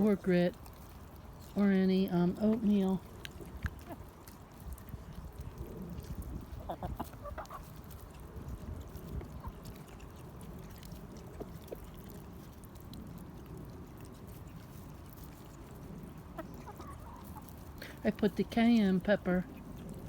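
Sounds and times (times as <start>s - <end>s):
steady low rumble: 0.0s - 20.0s
hens clucking: 3.4s - 4.4s, 6.1s - 8.3s, 16.1s - 19.4s.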